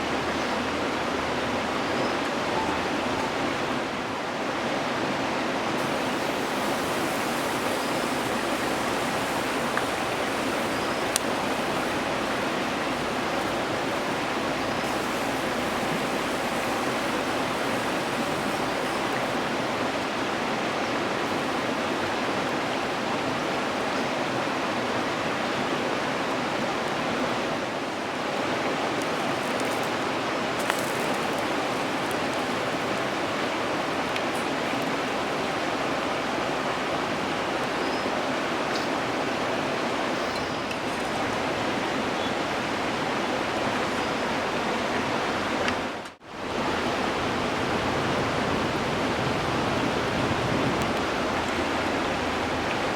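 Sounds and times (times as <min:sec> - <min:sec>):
batter sizzling in a pan: 0:05.8 - 0:20.0
burning wood crackling: 0:05.8 - 0:22.2, 0:29.0 - 0:35.0, 0:46.8 - 0:52.9.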